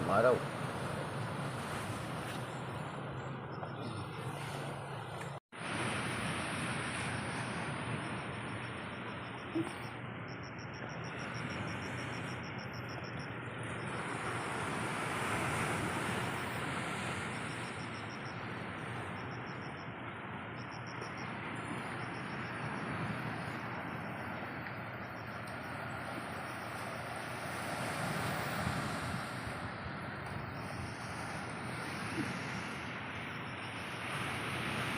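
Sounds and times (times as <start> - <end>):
high insect trill: 7.3 - 29.4.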